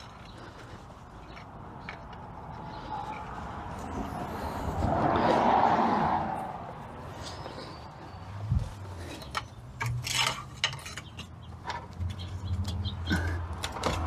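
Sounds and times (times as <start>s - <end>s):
pry bar clicking and scraping on metal: 9.0s - 14.0s.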